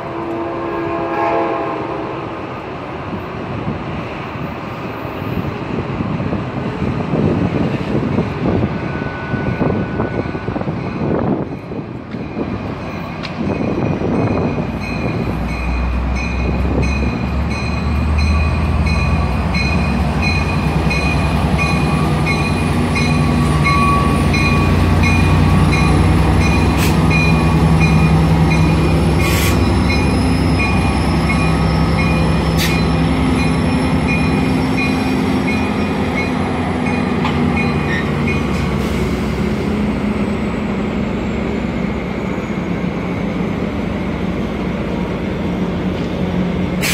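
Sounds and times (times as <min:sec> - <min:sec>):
diesel locomotive rumble: 0:00.0 - 0:46.9
locomotive bell ringing: 0:08.8 - 0:38.6.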